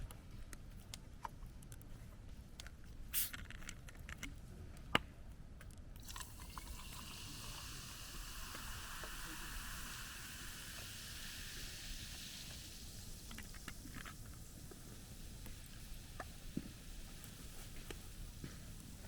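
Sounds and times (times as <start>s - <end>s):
food sizzling in a pan: 6.0s - 19.0s.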